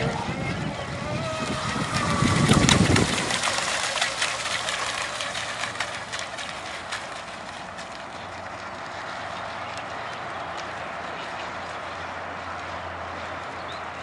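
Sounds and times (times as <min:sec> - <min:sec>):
electric motor whine: 0:00.0 - 0:05.8
wind rumble on microphone: 0:00.0 - 0:14.0.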